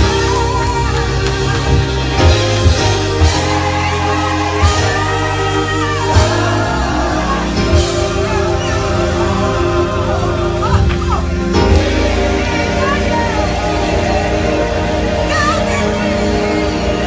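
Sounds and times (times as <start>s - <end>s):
church singing over a band: 0.0s - 17.0s.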